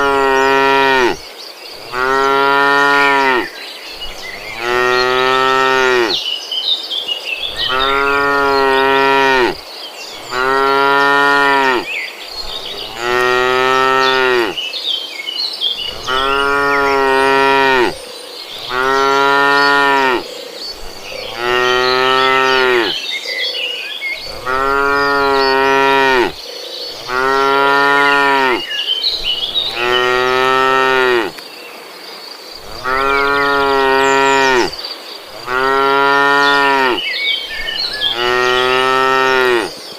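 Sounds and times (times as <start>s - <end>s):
cattle mooing: 0.0s - 1.2s, 1.8s - 3.5s, 4.4s - 6.2s, 7.5s - 9.6s, 10.3s - 11.9s, 12.7s - 14.6s, 15.8s - 18.0s, 18.6s - 20.2s, 21.2s - 23.0s, 24.2s - 26.4s, 27.0s - 28.7s, 29.5s - 31.4s, 32.6s - 34.7s, 35.3s - 37.0s, 38.0s - 39.7s.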